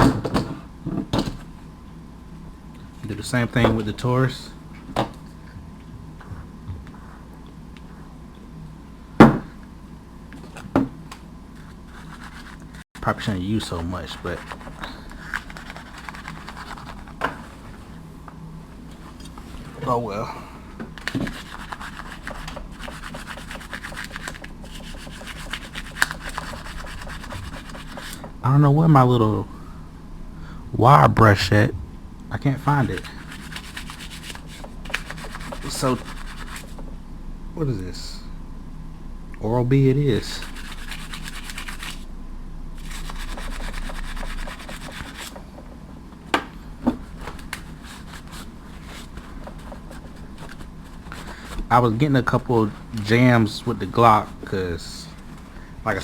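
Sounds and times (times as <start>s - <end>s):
toothbrush scrubbing metal: 11.6s - 12.8s, 13.5s - 17.2s, 21.2s - 28.2s, 32.7s - 36.8s, 40.1s - 42.1s, 42.8s - 45.4s
rapid scrubbing on metal part: 21.3s - 28.3s.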